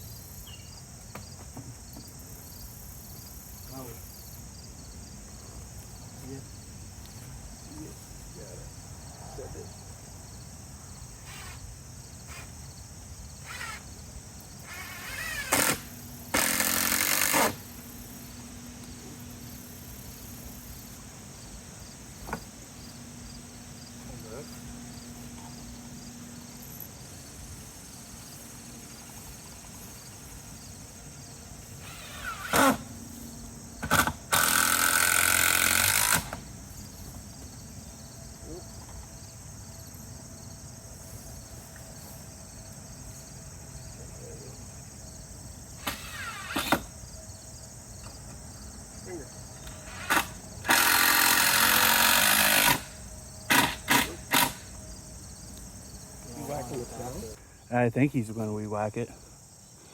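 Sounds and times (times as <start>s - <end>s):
crickets chirping: 0.0s - 59.9s
cordless drill driving screw: 11.2s - 11.6s, 13.4s - 13.9s, 14.7s - 17.7s, 31.8s - 32.9s, 33.8s - 36.4s, 45.8s - 46.9s, 49.6s - 52.9s, 53.5s - 54.6s.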